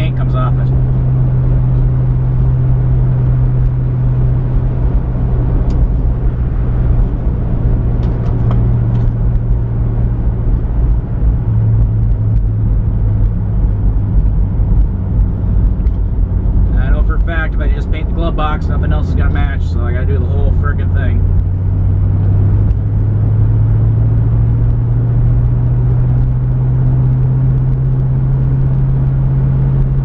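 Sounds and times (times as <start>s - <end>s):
car engine droning: 0.0s - 30.0s
road noise inside car: 0.0s - 30.0s.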